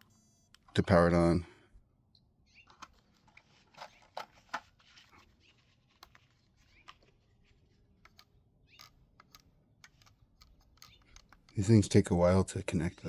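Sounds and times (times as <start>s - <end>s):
plastic clicks and handling noises: 2.7s - 7.2s, 8.0s - 11.7s.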